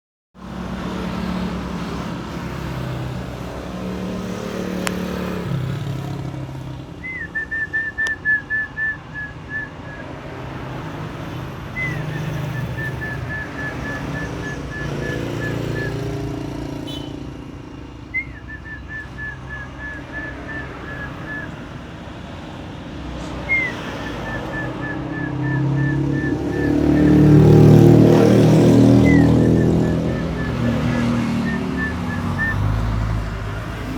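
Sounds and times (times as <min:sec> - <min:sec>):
dove cooing: 0:11.8 - 0:16.2, 0:18.2 - 0:21.7, 0:23.5 - 0:33.1
vehicle engine running: 0:23.5 - 0:33.9.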